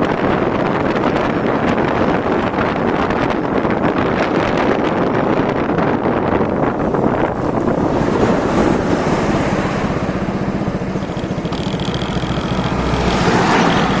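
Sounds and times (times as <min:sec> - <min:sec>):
wind noise on microphone: 0:00.0 - 0:14.0
scooter engine running: 0:06.7 - 0:14.0.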